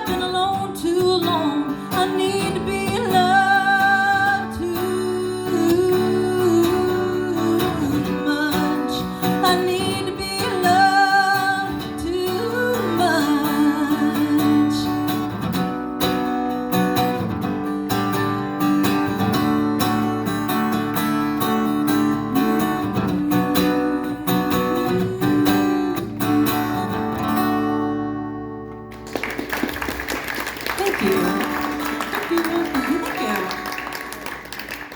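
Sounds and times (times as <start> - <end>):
person singing: 0.0 - 15.0, 22.2 - 26.1
strummed acoustic guitar: 0.0 - 29.1.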